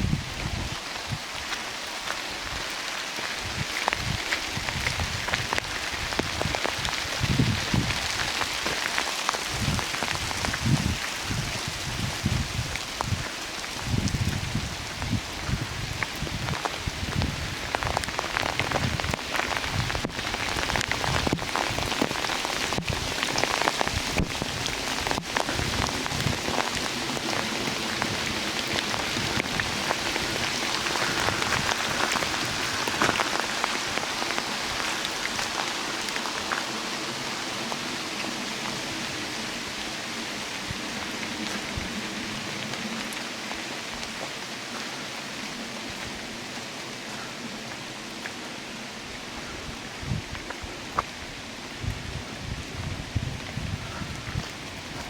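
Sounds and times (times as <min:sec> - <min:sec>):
rain hiss: 0:00.0 - 0:55.0
raindrops tapping: 0:00.4 - 0:39.5.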